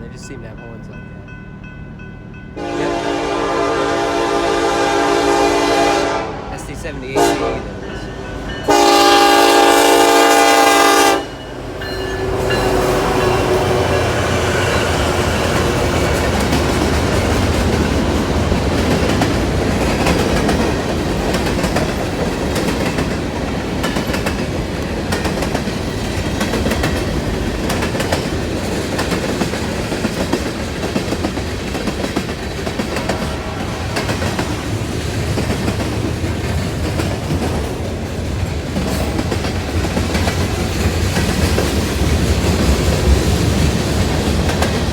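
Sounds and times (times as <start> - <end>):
locomotive horn blast: 2.6 - 11.4
train wheels clicking on rail joints: 11.4 - 44.9.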